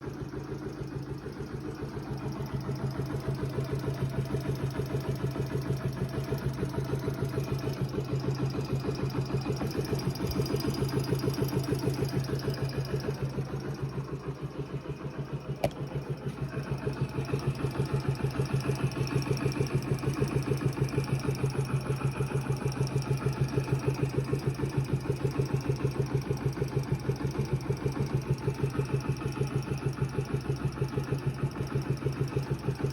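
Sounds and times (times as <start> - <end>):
mechanical engine noise: 0.0 - 32.9
motorcycle engine idling: 0.0 - 32.9
sharp click: 15.6 - 16.0.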